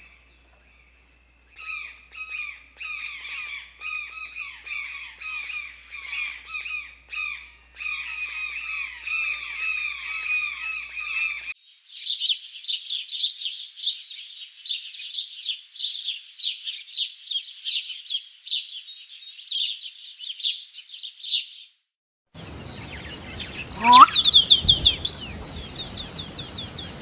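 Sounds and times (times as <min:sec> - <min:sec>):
birds squawking: 0:01.6 - 0:11.5, 0:23.6 - 0:24.5
high-pitched bird chirping: 0:23.6 - 0:24.5.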